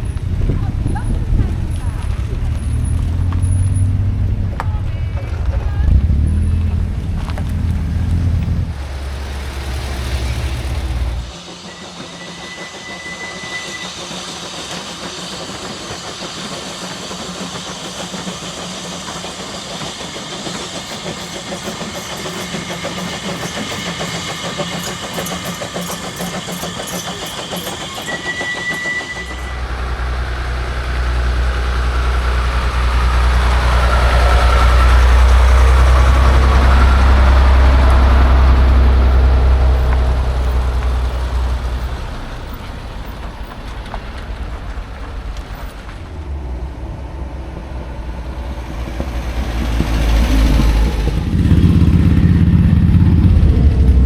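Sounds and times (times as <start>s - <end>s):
deep engine rumble: 0.0s - 12.2s, 29.4s - 54.0s
engine ticking: 0.0s - 54.0s.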